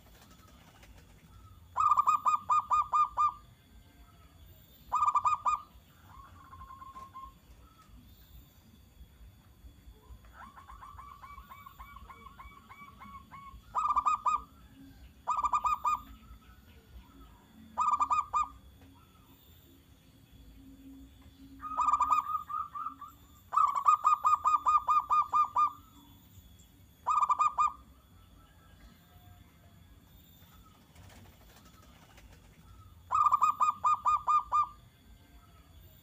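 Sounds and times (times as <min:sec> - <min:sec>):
dove cooing: 0:00.0 - 0:03.5, 0:04.9 - 0:07.8, 0:10.2 - 0:16.4, 0:17.0 - 0:19.2, 0:21.6 - 0:26.0, 0:27.0 - 0:27.9, 0:30.6 - 0:34.8.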